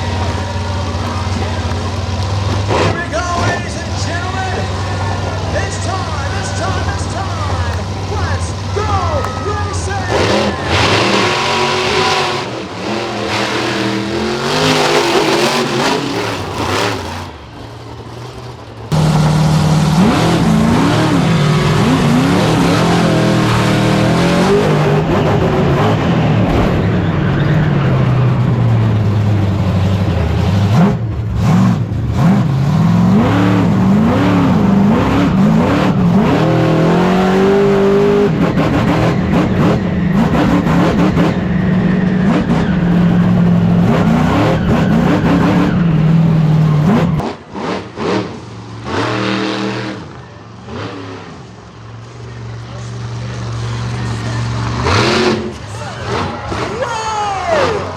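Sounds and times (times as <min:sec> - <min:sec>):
monster truck engine revving: 0:00.0 - 0:57.9.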